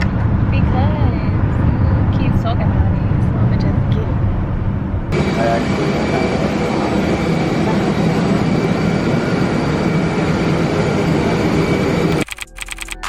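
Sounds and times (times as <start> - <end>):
low vehicle noise: 0.0 - 5.7.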